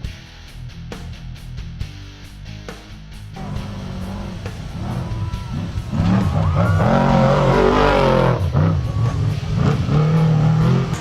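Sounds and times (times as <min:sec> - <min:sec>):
music: 0:00.0 - 0:11.0
truck engine revving hard: 0:03.4 - 0:11.0.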